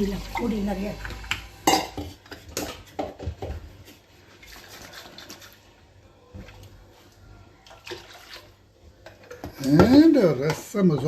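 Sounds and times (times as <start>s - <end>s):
kitchen utensils clinking: 0.0s - 3.6s
liquid pouring into a pot: 7.6s - 9.4s.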